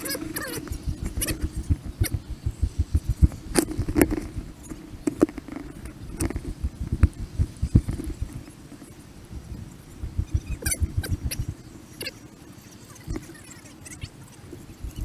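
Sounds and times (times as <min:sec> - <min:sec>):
faint steady hum: 0:00.0 - 0:15.0
rapid low thumps: 0:00.2 - 0:11.7, 0:14.8 - 0:15.0
sharp clicks: 0:00.4 - 0:08.9, 0:10.0 - 0:11.6.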